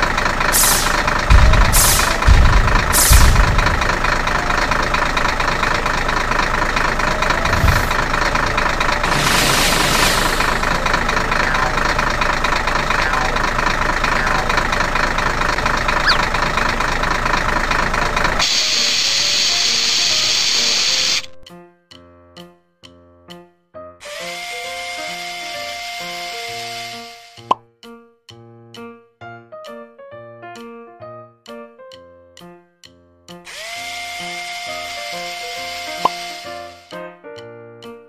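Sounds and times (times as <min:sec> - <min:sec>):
truck engine running: 0:00.0 - 0:21.4, 0:24.4 - 0:27.4, 0:33.5 - 0:36.8
loud explosion bang: 0:01.3 - 0:03.9.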